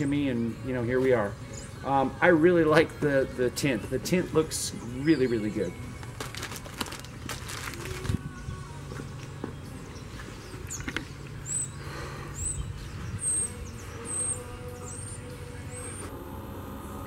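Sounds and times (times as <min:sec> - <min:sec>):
bird chirping high: 0:09.4 - 0:16.1.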